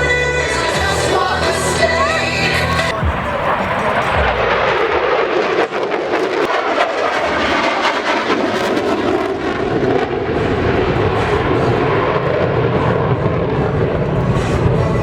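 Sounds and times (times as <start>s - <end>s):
fighter jet flying overhead: 2.6s - 15.0s.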